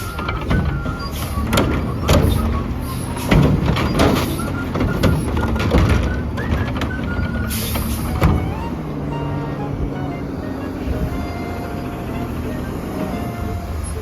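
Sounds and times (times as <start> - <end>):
metal clanks and bangs: 0.0 - 9.0
garbage truck engine running: 0.0 - 14.0.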